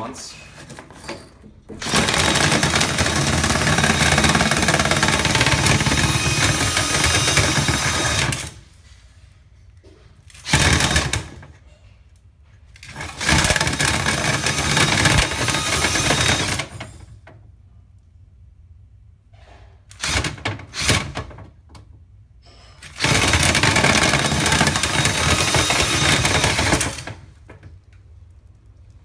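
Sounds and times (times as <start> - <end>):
electric motor running: 1.8 - 8.6, 13.1 - 16.6, 23.0 - 27.0.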